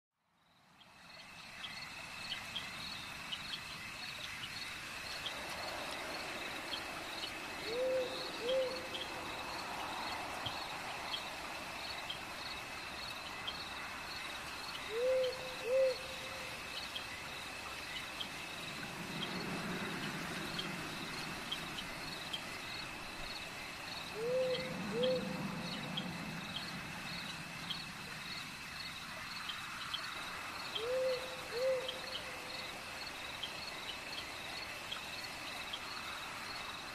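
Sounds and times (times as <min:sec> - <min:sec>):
crickets trilling: 0:00.4 - 0:36.9
owl hooting: 0:07.6 - 0:08.9, 0:14.9 - 0:16.1, 0:24.2 - 0:25.3, 0:30.8 - 0:32.0.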